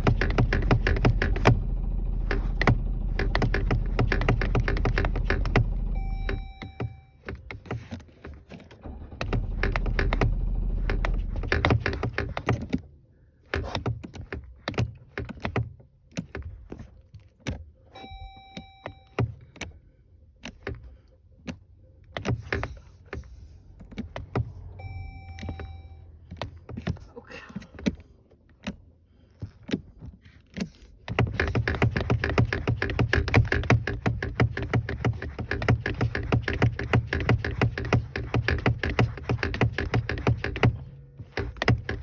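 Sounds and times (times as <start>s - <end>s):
van engine cranking: 0.0s - 12.9s, 21.7s - 27.1s, 30.6s - 42.0s
dashboard warning chime: 5.7s - 7.3s, 18.0s - 19.4s, 24.6s - 26.2s.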